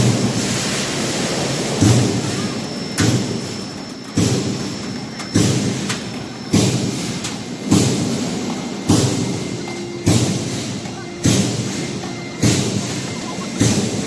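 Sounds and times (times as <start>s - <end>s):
machine line running noise: 0.0s - 14.0s
heavy machine punch thumps: 10.0s - 12.9s.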